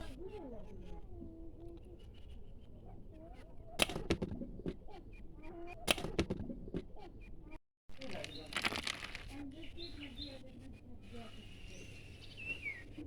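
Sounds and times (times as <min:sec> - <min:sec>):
sharp clatters: 0:07.9 - 0:09.4.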